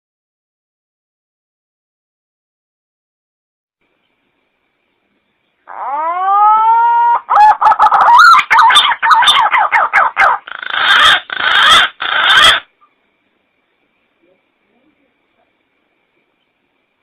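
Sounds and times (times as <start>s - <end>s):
recorded pigeon lure call: 5.7s - 12.7s.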